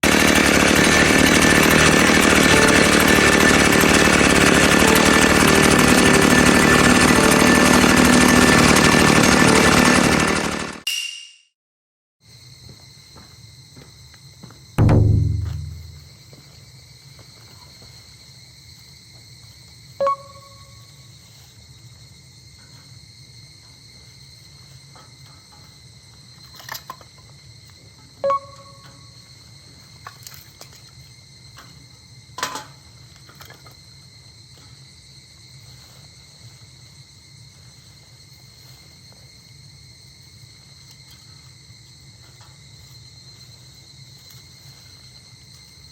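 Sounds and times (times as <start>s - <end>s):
power tool running with pulsing rattle: 0.0s - 10.8s
insects chirring: 12.2s - 45.9s.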